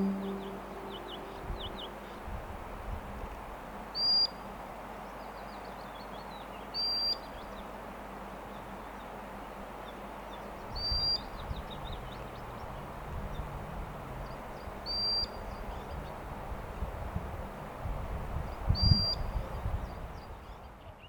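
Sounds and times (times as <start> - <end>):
steady outdoor hiss: 0.0 - 21.0.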